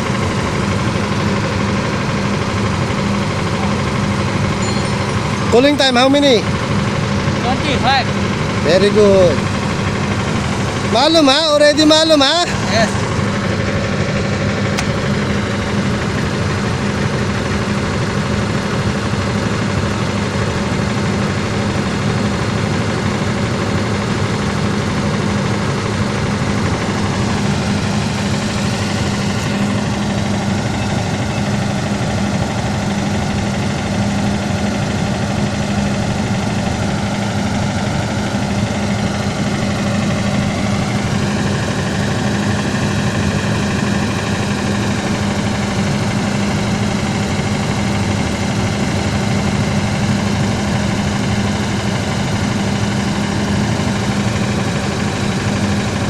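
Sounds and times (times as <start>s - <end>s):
engine humming: 0.0s - 56.0s
higher tones: 1.8s - 14.0s.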